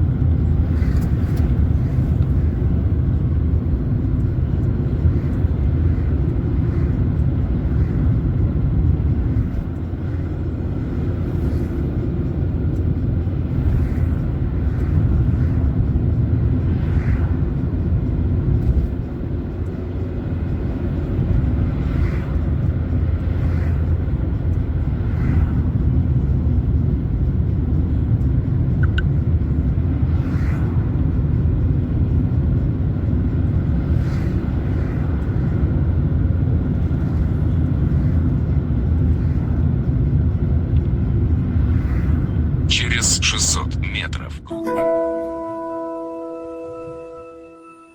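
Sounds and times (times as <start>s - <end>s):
car engine and tyres rumbling: 0.0s - 44.3s.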